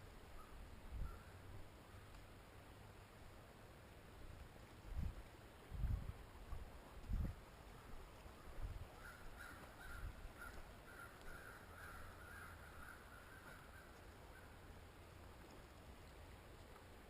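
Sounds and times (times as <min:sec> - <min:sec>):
bird calling repeated notes: 0:09.0 - 0:14.6.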